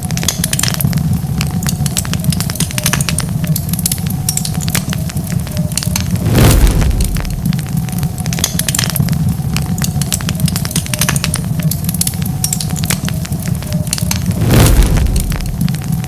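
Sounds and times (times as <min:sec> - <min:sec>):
fire crackling: 0:00.0 - 0:16.0
loud burst of noise: 0:06.0 - 0:07.8, 0:14.2 - 0:15.9
low steady rumble: 0:06.0 - 0:08.2, 0:14.2 - 0:16.0.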